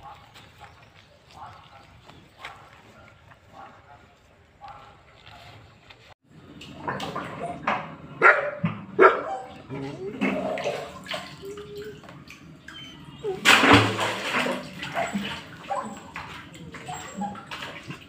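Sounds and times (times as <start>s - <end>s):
dog barking: 0.0s - 0.3s, 1.3s - 5.6s, 8.2s - 10.4s, 14.9s - 16.1s
voices: 9.0s - 13.5s.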